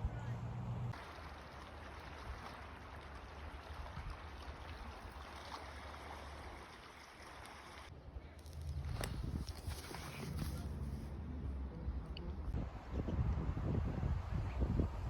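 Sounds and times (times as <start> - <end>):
flowing water rushing: 0.9 - 7.9.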